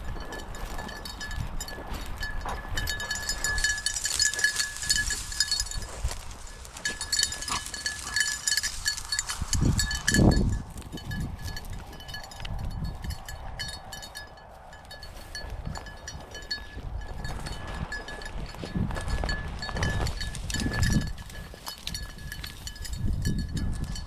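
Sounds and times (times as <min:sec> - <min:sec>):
rustling brush: 0:00.0 - 0:12.3
dog collar bell jingling: 0:00.0 - 0:24.0.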